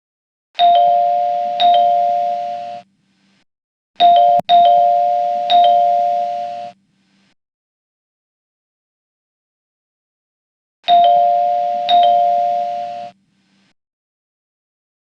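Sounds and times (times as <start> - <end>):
electronic two-tone chime: 4.0 - 6.8.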